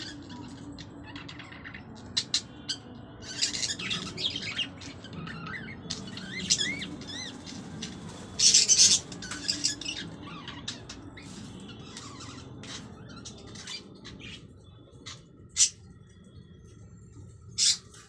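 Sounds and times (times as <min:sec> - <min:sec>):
birds chirping and calling: 0:00.0 - 0:18.0
loud harsh bird squawk: 0:17.6 - 0:18.0.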